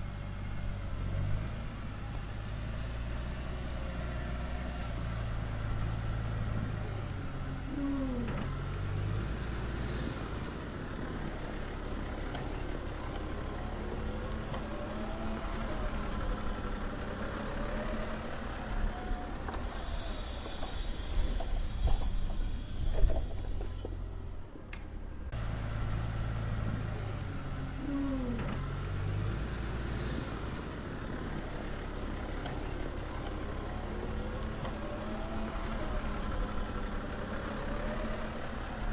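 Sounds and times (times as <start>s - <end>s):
truck engine rumble: 0.0s - 38.9s
loud hiss: 19.7s - 23.9s.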